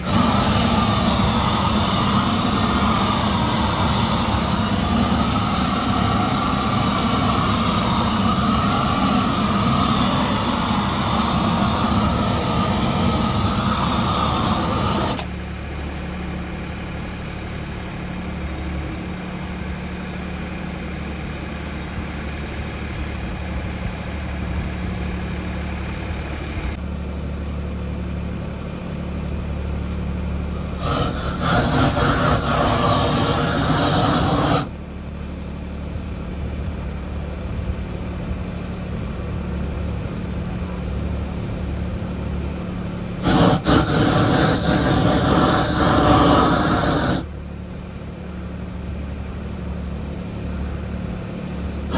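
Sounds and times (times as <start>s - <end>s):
engine running: 0.0s - 51.9s.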